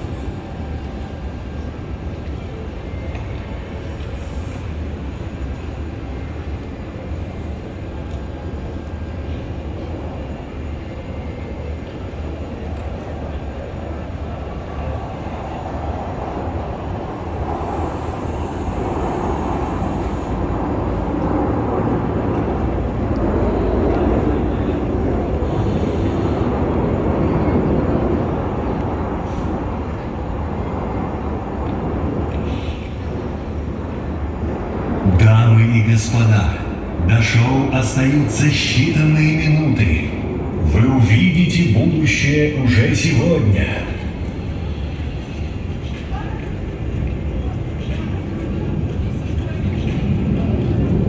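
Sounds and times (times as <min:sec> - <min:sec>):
aircraft engine rumble: 0:00.0 - 0:51.0.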